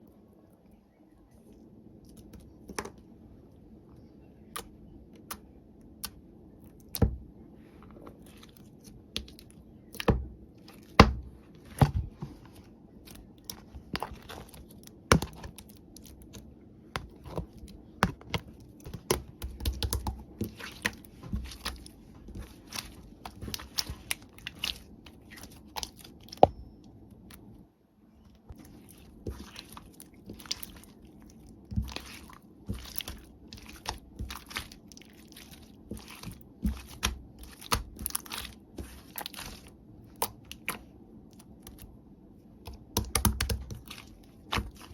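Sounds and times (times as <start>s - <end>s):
low room hum: 0.0s - 44.9s
small clicks taps and crinkles: 1.3s - 3.1s, 7.8s - 27.6s, 28.2s - 42.0s, 42.6s - 44.9s.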